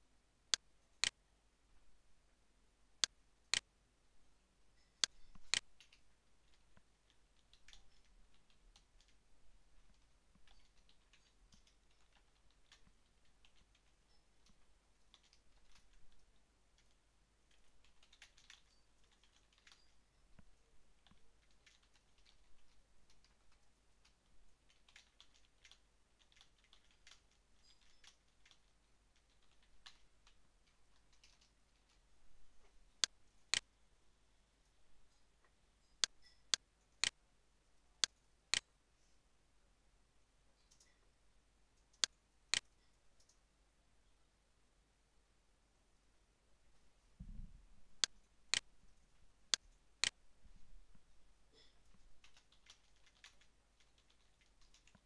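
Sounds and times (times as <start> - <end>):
computer mouse clicks: 5.0 - 9.2, 9.9 - 32.0, 40.6 - 41.0, 41.8 - 43.4, 51.8 - 55.0
typing on computer keyboard: 5.0 - 9.2, 9.9 - 20.0, 21.0 - 32.0, 40.6 - 41.0, 51.6 - 55.0.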